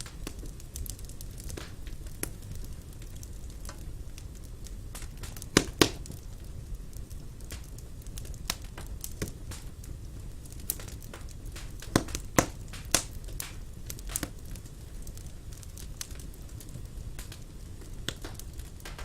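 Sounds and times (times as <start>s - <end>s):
low rumble of flames: 0.0s - 19.0s
wood fire crackling and popping: 0.0s - 19.0s.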